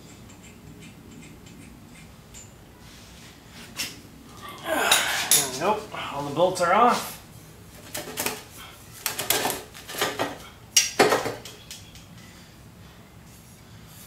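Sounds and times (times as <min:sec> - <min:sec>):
metal tools clinking and clanking: 0:04.9 - 0:05.7.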